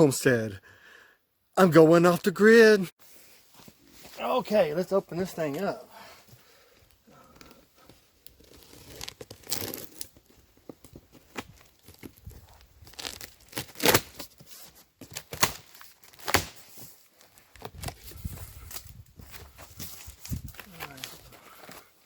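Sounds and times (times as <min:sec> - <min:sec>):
tape and cardboard tearing: 0:08.2 - 0:10.3, 0:11.2 - 0:16.9.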